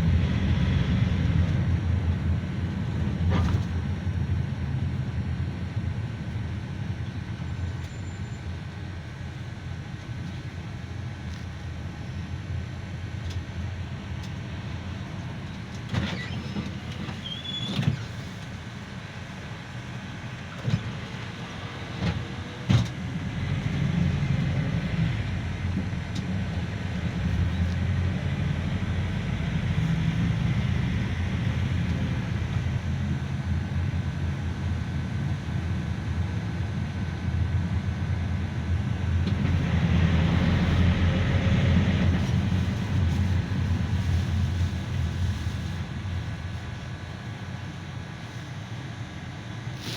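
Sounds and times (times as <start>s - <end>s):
minibus engine and road rumble: 0.0s - 49.9s.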